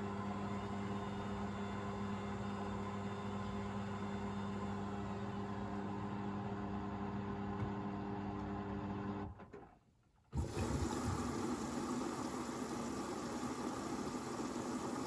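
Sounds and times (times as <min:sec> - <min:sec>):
drain pump humming: 0:10.4 - 0:15.0.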